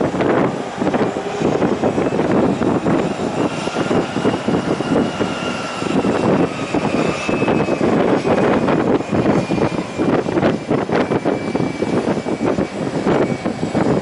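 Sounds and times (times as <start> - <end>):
jet engines whining: 0.0 - 14.0
wind buffeting microphone: 0.0 - 14.0.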